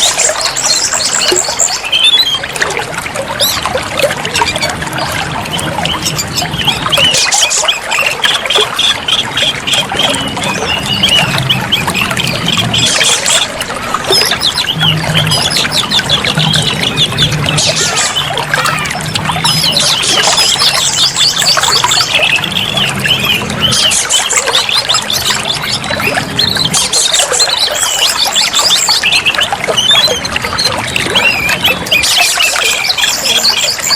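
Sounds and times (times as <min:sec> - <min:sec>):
bird singing chirps and trills: 0:00.0 - 0:33.9
trickling water: 0:00.0 - 0:33.9.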